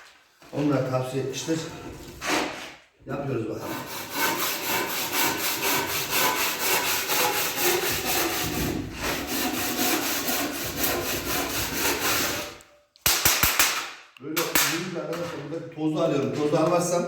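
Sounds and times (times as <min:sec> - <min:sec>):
hand tool rasping back and forth: 0:03.6 - 0:12.6.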